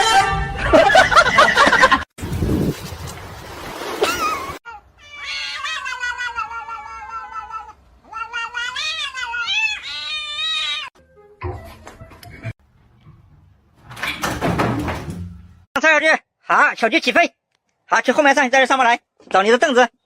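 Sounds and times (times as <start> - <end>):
cat yowling: 4.7 - 10.9.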